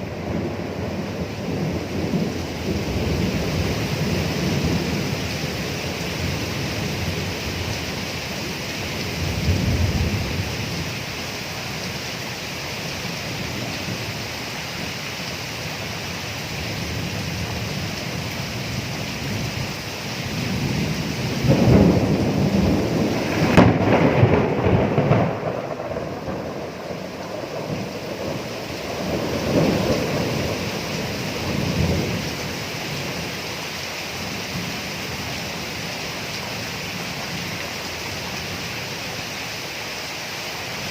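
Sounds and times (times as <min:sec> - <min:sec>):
thunder rumbling: 0:00.0 - 0:11.2, 0:16.8 - 0:33.5
steady rain: 0:00.0 - 0:40.9
loud rolling thunderclap: 0:20.3 - 0:32.3.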